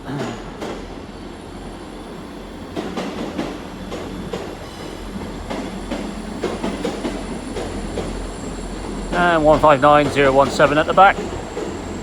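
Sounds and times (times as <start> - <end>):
low train rumble: 0.0 - 12.0
train wheels clacking over rail joints: 2.7 - 12.0.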